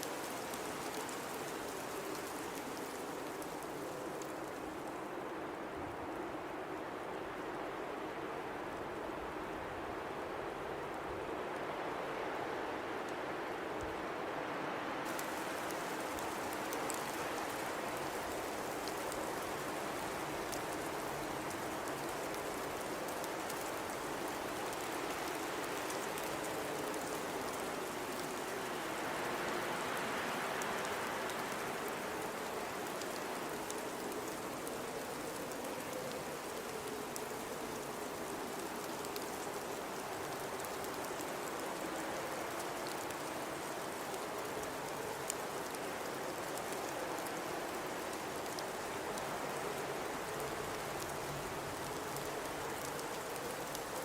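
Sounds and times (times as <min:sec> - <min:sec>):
faint scattered ticks: 0:00.0 - 0:05.1, 0:15.0 - 0:54.0
blizzard wind howling: 0:00.0 - 0:54.0.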